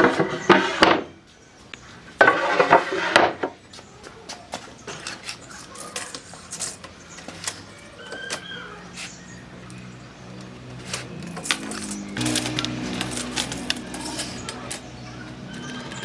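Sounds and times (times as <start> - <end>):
low hum: 10.6 - 16.0.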